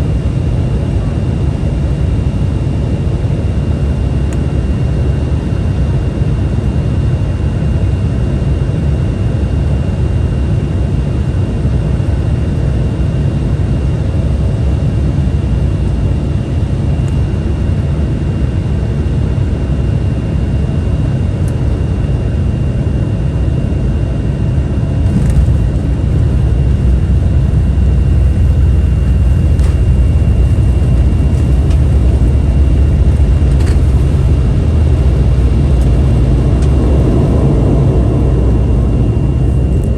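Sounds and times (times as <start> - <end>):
jet engine and airflow rumble: 0.0 - 39.9
high whine: 23.2 - 39.9.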